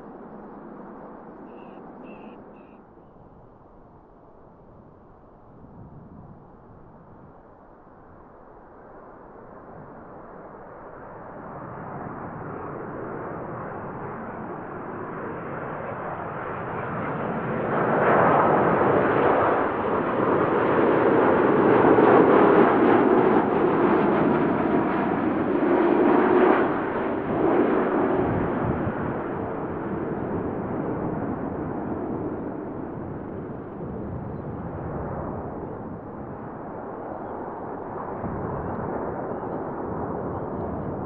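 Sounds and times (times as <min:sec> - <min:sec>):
jet aircraft passing: 0:10.9 - 0:41.0.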